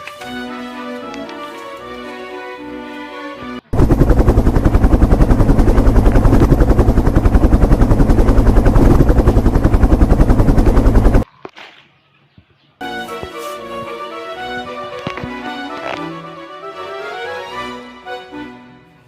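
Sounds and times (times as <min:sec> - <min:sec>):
loud rapid pulsing noise: 0:03.8 - 0:11.2.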